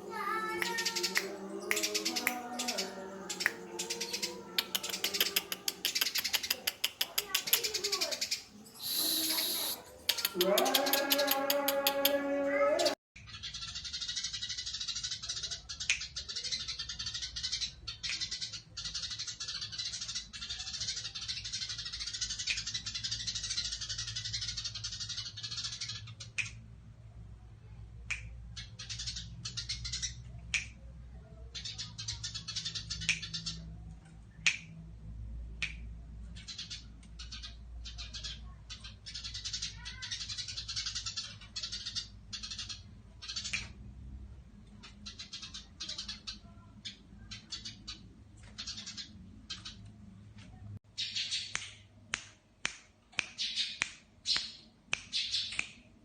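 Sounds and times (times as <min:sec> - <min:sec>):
sparrow chirping: 0:00.0 - 0:11.3, 0:12.8 - 0:26.4, 0:36.3 - 0:43.6.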